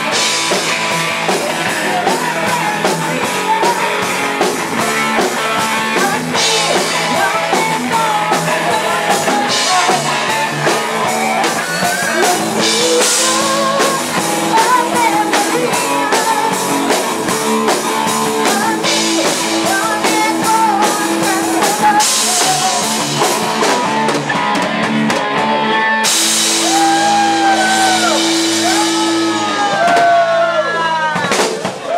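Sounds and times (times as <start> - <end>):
drum kit: 0.0 - 31.9
electric guitar: 0.0 - 31.9
live rock band: 0.0 - 31.9
amplified singing: 0.9 - 24.3.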